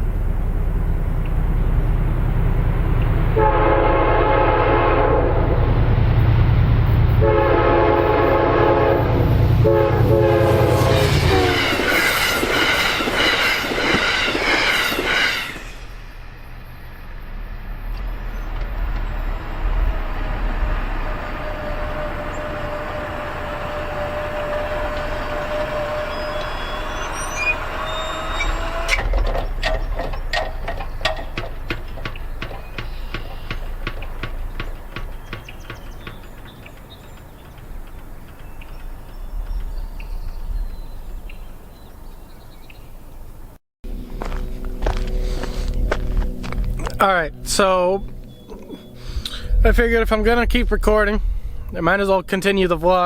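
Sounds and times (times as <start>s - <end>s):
locomotive rumble: 0.0s - 53.0s
rail noise: 0.0s - 53.0s
train horn blasts: 3.3s - 5.8s, 7.1s - 15.8s, 19.1s - 29.1s.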